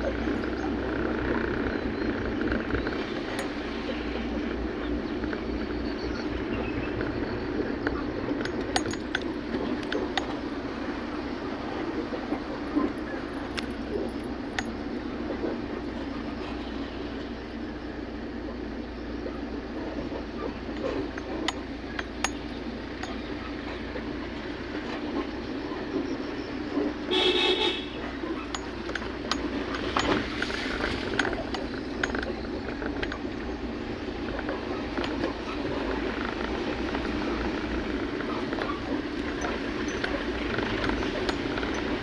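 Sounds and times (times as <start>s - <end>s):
small clicks and rattles: 0.0s - 42.0s
vehicle running on road: 0.0s - 42.0s
horn toot: 27.1s - 28.1s.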